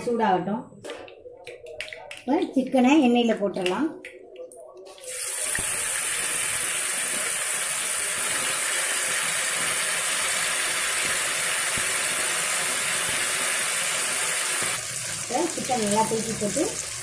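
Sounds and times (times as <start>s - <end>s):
chicken sizzling in hot oil: 5.1s - 17.0s.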